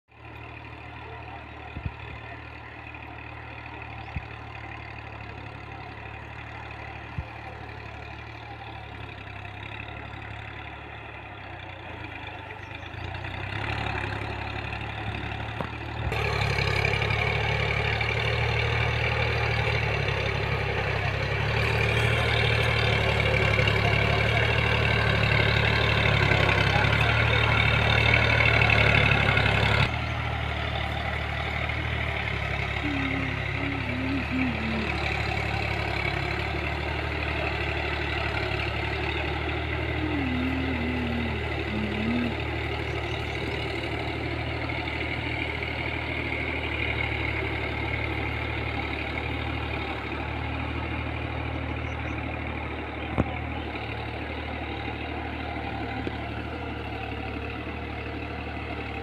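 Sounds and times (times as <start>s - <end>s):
tractor engine running: 0.1s - 59.0s.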